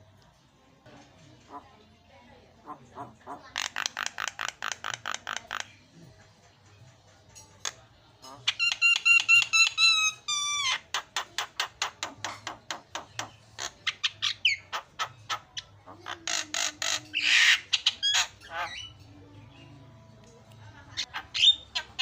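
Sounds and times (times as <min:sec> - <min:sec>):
harsh rasping squawk: 0:08.2 - 0:19.1, 0:21.0 - 0:22.0.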